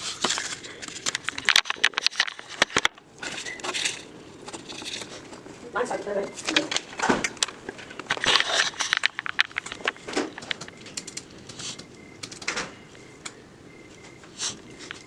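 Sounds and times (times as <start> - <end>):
clicks and knocks of handling: 0.1 - 5.6, 6.3 - 15.0.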